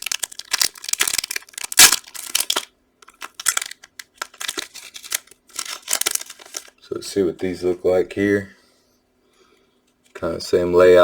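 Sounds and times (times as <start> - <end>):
plastic wrapper crinkling and tearing: 0.0 - 6.8.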